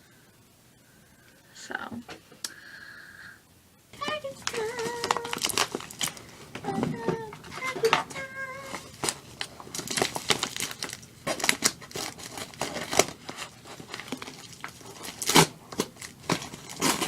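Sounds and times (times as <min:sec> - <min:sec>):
package wrapping crinkling and tearing: 0:04.0 - 0:17.0.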